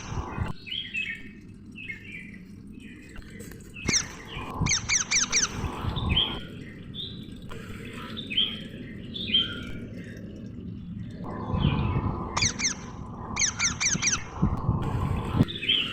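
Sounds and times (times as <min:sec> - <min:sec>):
parrots squawking: 0:12.4 - 0:14.3.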